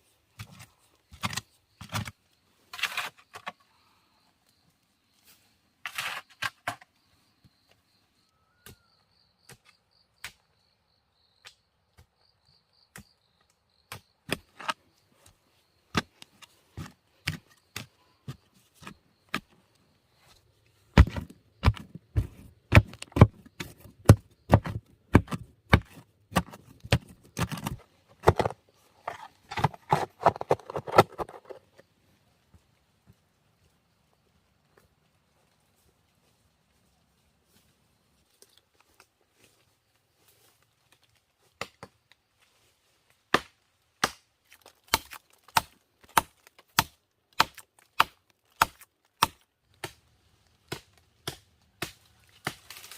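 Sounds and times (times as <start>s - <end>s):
blade chopping wood: 21.0s - 28.6s, 43.3s - 50.0s, 50.7s - 52.9s.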